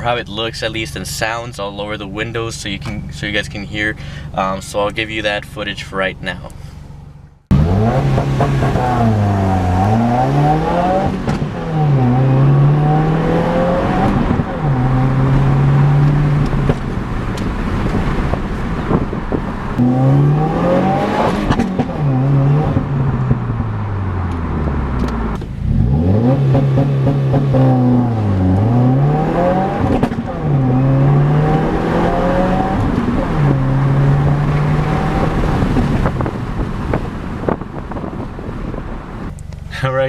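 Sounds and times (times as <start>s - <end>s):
car engine accelerating hard: 7.2s - 39.9s.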